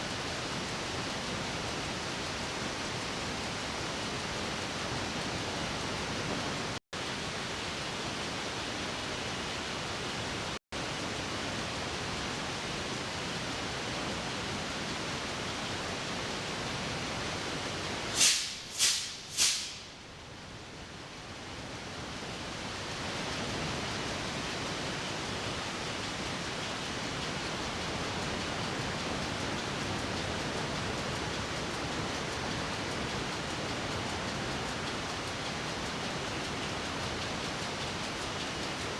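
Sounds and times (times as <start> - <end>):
engine room diesel noise: 14.2 - 20.1.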